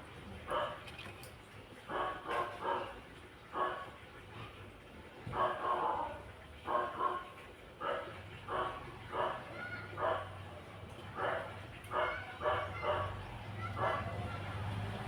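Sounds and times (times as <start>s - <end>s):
dog barking: 0.5s - 0.8s, 1.9s - 2.9s, 5.4s - 10.4s, 11.2s - 13.2s, 13.8s - 14.2s.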